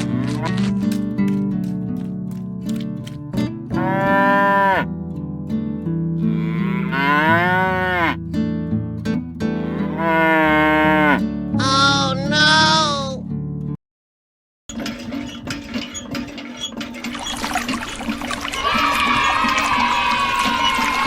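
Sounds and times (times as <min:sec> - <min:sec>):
cow mooing: 0:03.7 - 0:04.9, 0:06.3 - 0:08.2, 0:09.5 - 0:13.0.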